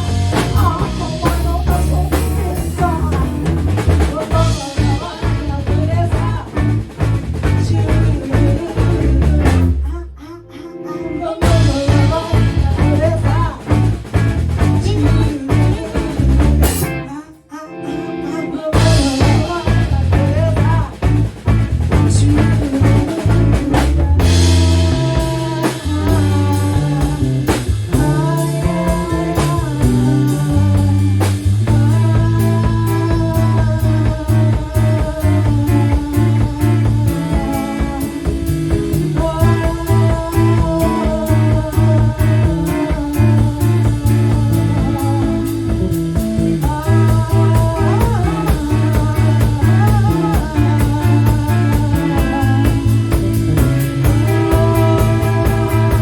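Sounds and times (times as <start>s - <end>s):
rock band playing: 0.0s - 9.8s, 11.2s - 17.1s, 17.7s - 56.0s
drum kit: 0.0s - 9.9s, 11.4s - 17.1s, 18.7s - 56.0s
bass guitar: 0.0s - 17.2s, 18.0s - 56.0s
electric guitar bending notes: 10.4s - 56.0s
wavering lead line: 18.4s - 56.0s.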